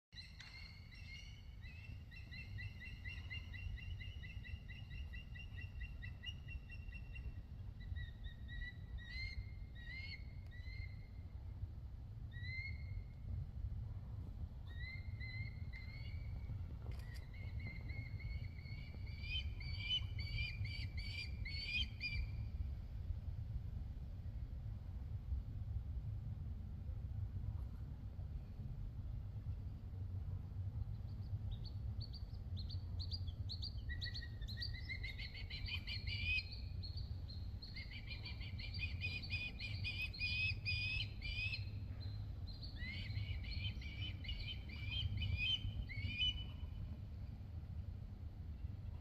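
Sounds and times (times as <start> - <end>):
bird calling: 0.2 - 11.2, 14.7 - 22.4, 31.5 - 46.9
steady low rumble: 0.2 - 49.0.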